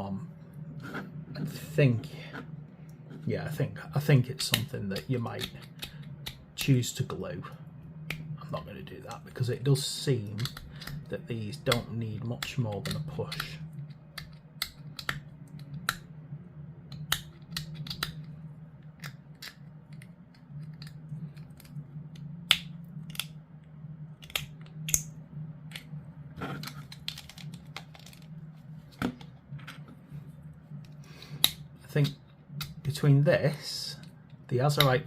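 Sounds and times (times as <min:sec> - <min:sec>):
steady low hum: 0:00.0 - 0:35.0
plastic parts clicking and tapping: 0:26.6 - 0:28.3.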